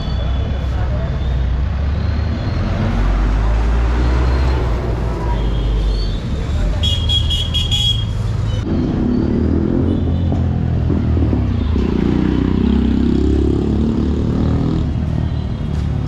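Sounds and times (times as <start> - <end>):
vehicle engines running: 8.0 - 16.0.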